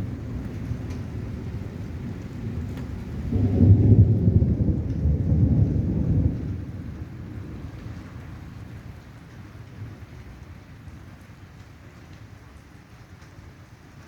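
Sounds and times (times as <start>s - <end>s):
thunder rumbling: 0.0s - 9.0s
steady rain: 0.0s - 14.0s.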